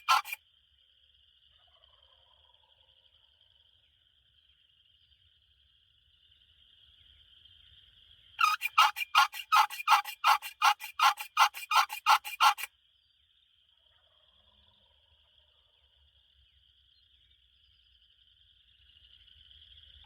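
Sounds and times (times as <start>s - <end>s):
turkey call yelps: 0.0s - 0.4s, 8.4s - 12.7s
faint insect trill: 0.0s - 13.8s, 14.6s - 20.0s.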